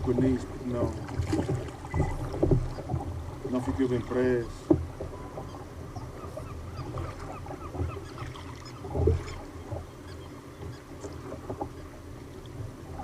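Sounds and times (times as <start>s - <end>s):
low knocks on hull: 0.0s - 5.5s, 8.8s - 9.8s
water slapping against a kayak: 0.0s - 13.0s.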